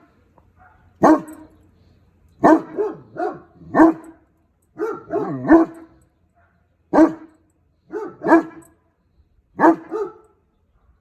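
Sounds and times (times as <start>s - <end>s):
dogs barking: 0.5s - 1.6s, 2.4s - 7.3s, 7.9s - 8.7s, 9.6s - 11.0s.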